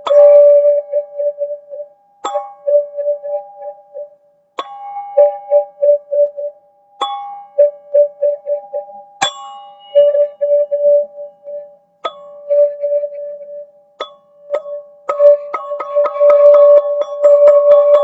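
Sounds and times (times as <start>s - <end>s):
struck tube notes ringing: 0.0s - 18.0s.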